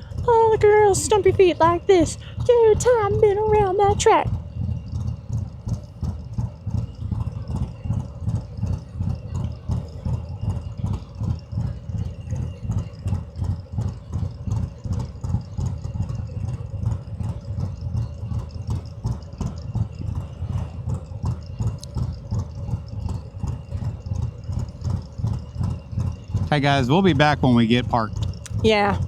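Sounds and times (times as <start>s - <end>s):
motorcycle engine idling: 0.0s - 29.0s.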